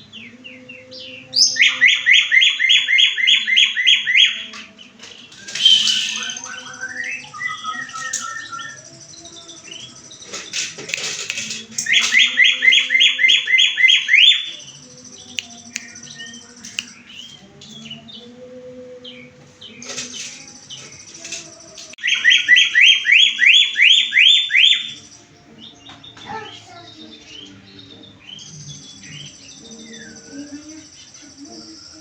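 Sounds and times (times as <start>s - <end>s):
soft bird chirps: 5.3s - 18.4s
songbird whistled runs: 5.4s - 8.9s.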